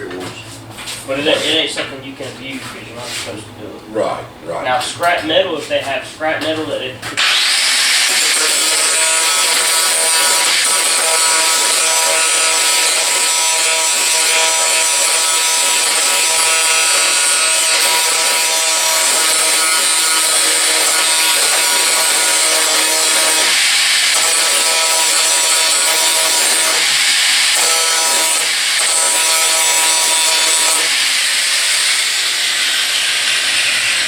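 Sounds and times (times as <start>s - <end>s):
power tool motor whine: 7.2s - 34.0s.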